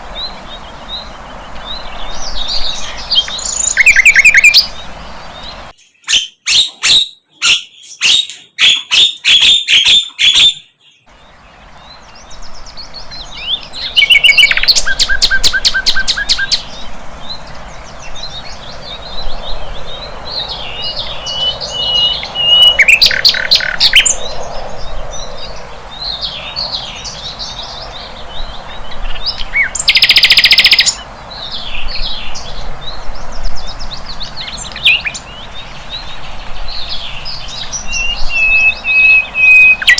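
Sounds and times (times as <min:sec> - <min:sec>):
flycatcher singing: 0:05.7 - 0:11.2.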